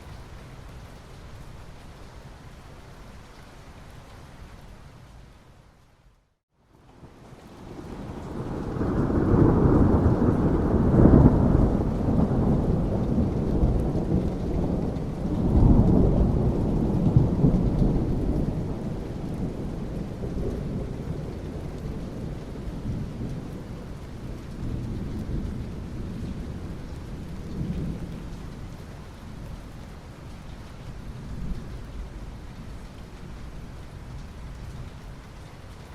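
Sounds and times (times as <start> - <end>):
steady rain: 0.0 - 35.9
rolling thunder: 7.6 - 28.8.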